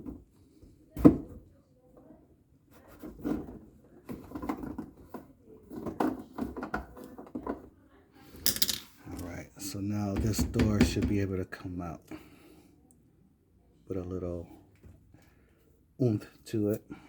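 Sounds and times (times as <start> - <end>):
parts clattering: 8.4 - 9.4
dishwasher parts clicking and knocking: 10.1 - 11.2.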